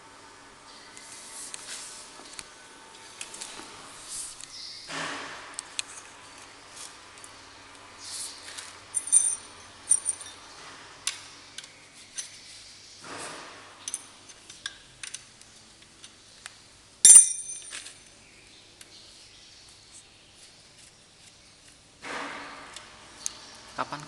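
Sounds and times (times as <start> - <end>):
metal tools clinking: 8.9 - 10.4, 17.0 - 18.1
loud ringing metal clank: 17.1 - 17.7.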